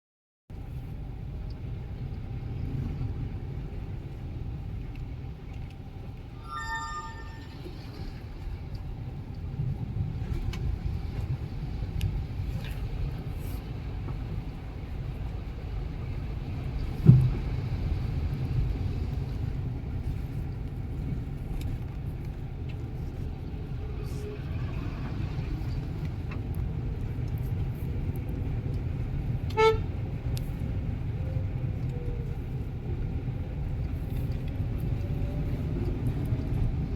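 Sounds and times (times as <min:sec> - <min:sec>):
road traffic: 0:00.6 - 0:36.9
vehicle horn toot: 0:06.4 - 0:07.7, 0:29.6 - 0:29.8.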